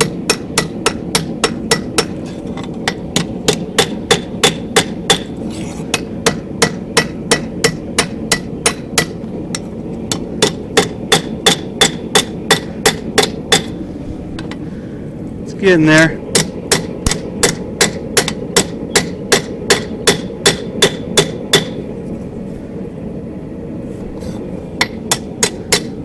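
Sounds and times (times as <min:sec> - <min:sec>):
hammer ringing on steel: 0:00.0 - 0:02.1, 0:02.8 - 0:05.3, 0:10.1 - 0:13.8, 0:16.3 - 0:21.8, 0:24.8 - 0:26.0
steady rushing noise: 0:00.0 - 0:26.0.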